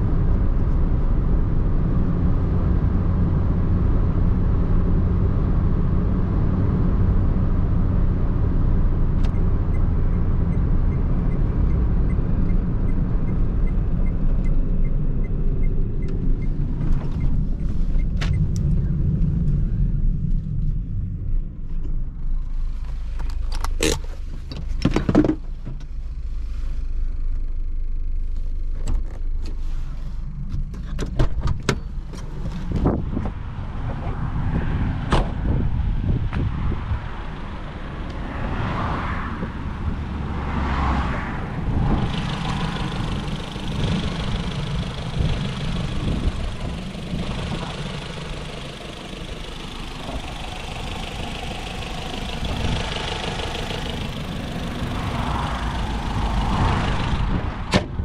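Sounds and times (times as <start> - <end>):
car engine low rumble: 0.0 - 58.0
sharp clicks and knocks: 23.2 - 25.9.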